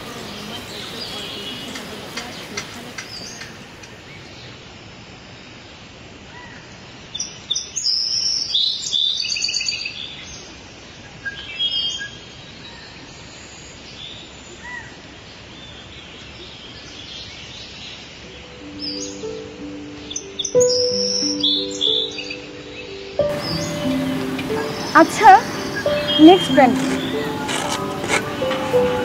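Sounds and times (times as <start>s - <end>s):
birds chirping: 0.0s - 4.6s, 17.2s - 29.0s
steady outdoor hiss: 0.0s - 29.0s.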